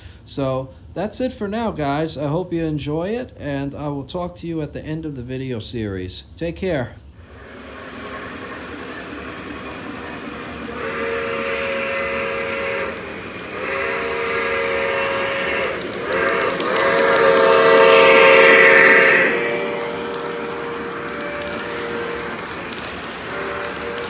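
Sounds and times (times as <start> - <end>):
model train running on track: 7.2 - 24.0
chime steam whistle blasts: 10.6 - 24.0.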